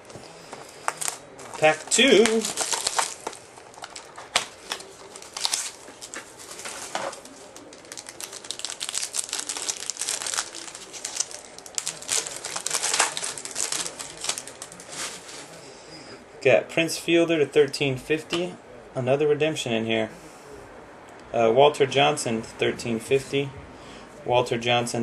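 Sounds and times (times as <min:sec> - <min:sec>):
wrapper crinkling and tearing: 0:00.0 - 0:15.5.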